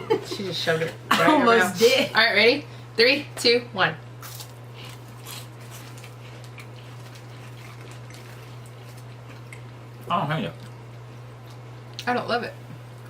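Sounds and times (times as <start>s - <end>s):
low electrical hum: 0.0s - 13.0s
crunching and chewing wafers: 4.2s - 9.8s.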